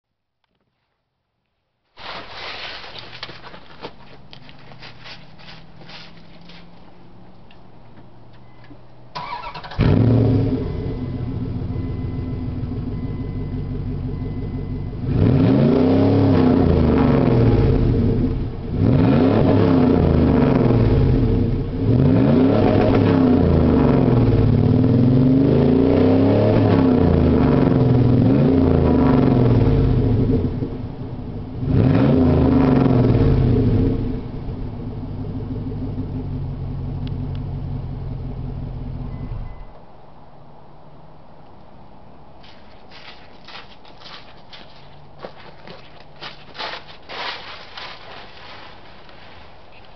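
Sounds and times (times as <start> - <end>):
car engine idling and revving: 3.3 - 41.0.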